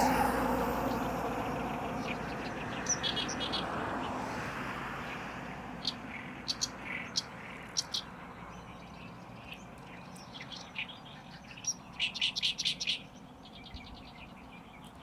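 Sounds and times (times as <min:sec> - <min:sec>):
bird song harsh repeated notes: 0:00.0 - 0:03.3.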